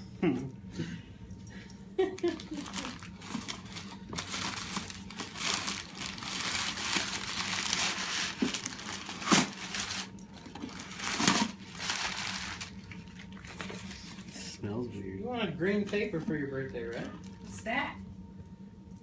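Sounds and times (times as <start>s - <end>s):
packing paper crinkling: 2.2s - 14.2s.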